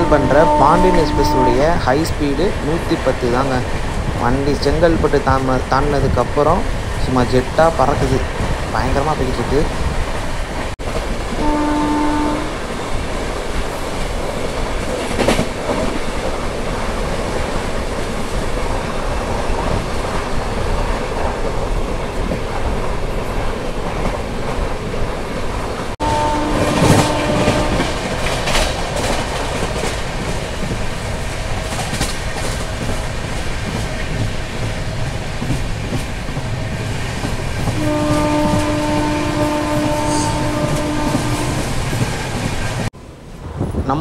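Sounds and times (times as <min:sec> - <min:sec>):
train horn: 0:00.0 - 0:01.7, 0:11.4 - 0:12.6, 0:26.0 - 0:28.0, 0:37.8 - 0:41.7
train wheels rumbling on rail: 0:00.0 - 0:44.0.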